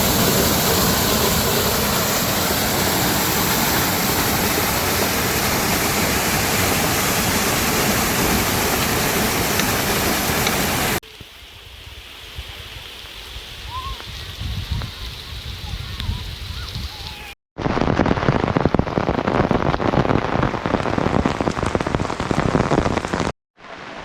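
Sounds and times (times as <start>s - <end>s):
water rushing: 0.0s - 11.1s.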